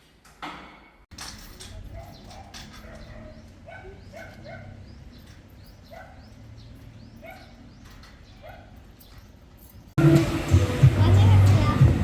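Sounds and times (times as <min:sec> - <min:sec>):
distant dog barking: 0:01.9 - 0:04.9, 0:05.8 - 0:06.4, 0:07.2 - 0:07.7, 0:08.3 - 0:08.8.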